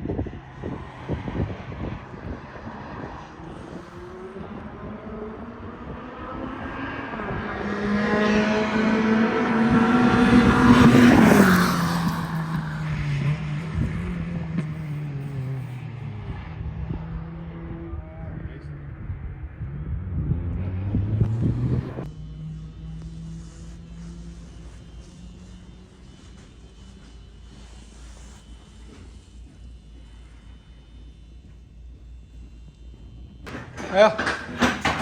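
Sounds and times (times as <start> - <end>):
steady engine note: 0.0 - 35.0.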